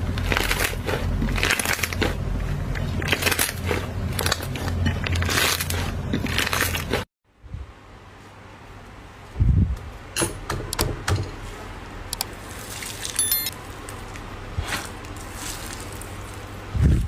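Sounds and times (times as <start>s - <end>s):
sharp crackling clicks: 12.1s - 12.3s.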